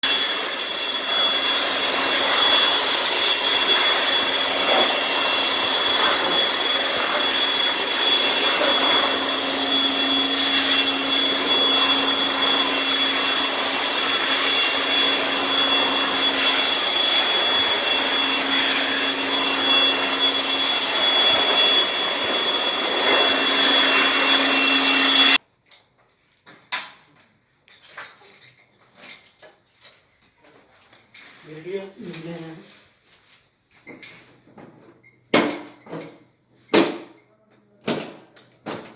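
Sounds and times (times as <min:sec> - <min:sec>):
machine motor whining: 0:00.4 - 0:25.4.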